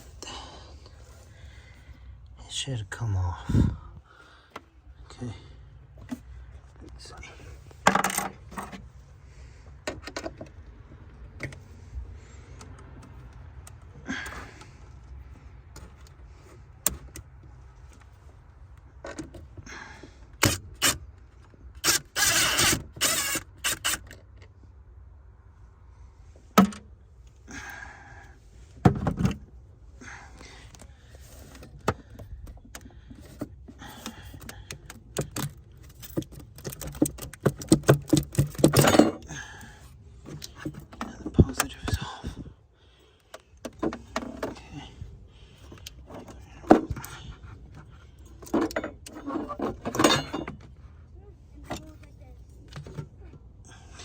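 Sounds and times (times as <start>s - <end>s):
metal tools clinking and scraping: 35.3s - 39.2s, 48.2s - 50.7s.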